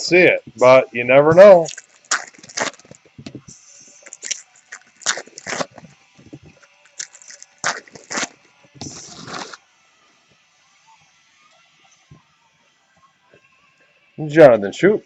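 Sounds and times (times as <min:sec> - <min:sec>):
card packaging crinkling: 0:01.6 - 0:03.1, 0:04.0 - 0:05.8, 0:06.6 - 0:09.6
packaging rustle: 0:04.1 - 0:09.6.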